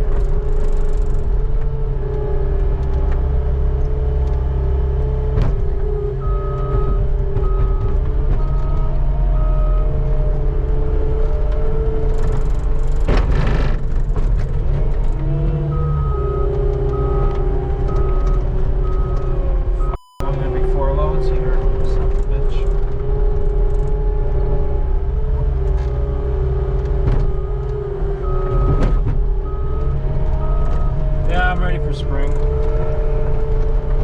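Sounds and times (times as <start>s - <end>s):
skid steer engine running hard: 0.0s - 34.0s
reversing alarm beeping: 6.2s - 10.0s, 15.7s - 21.5s, 27.3s - 32.6s.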